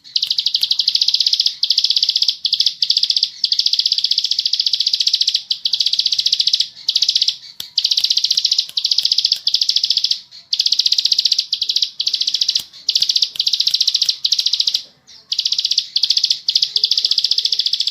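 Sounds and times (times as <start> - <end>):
bird singing buzzing trills: 0.0 - 17.9.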